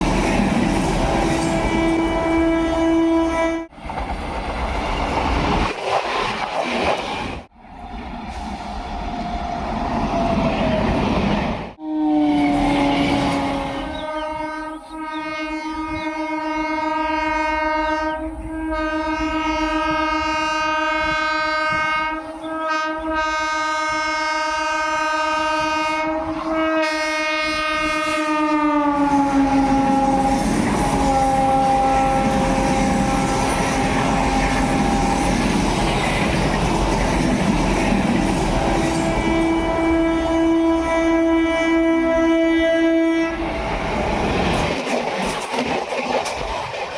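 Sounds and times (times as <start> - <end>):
train coaches rumbling: 0.0 - 46.9
train horn: 1.2 - 3.8, 11.8 - 35.6, 38.4 - 43.7.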